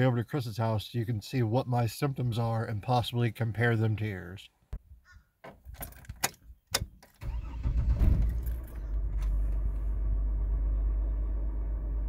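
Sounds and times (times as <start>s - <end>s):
keys clicking in ignition: 7.0s - 9.7s
car engine starting and idling: 7.2s - 12.0s.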